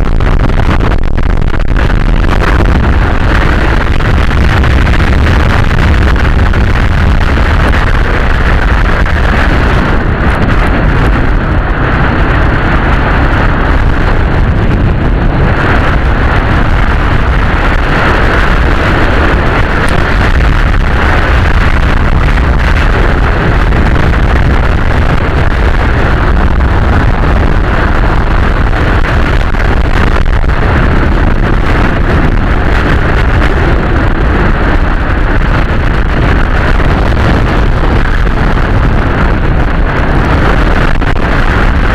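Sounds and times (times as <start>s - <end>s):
motorcycle engine running: 0.0s - 41.9s
wind noise on microphone: 0.0s - 41.9s.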